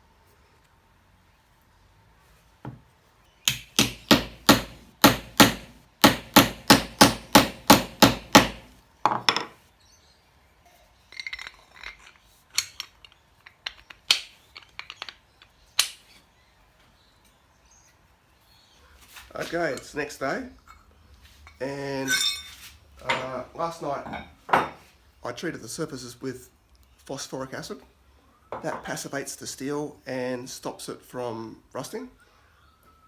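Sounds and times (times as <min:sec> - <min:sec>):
hammer striking metal: 0:03.5 - 0:08.7.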